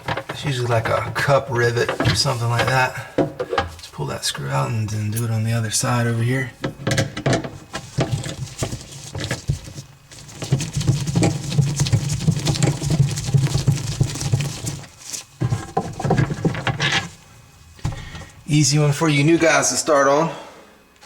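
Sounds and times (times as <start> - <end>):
steady low hum: 0.0 - 21.0
metal and plastic parts rattling: 6.6 - 17.2.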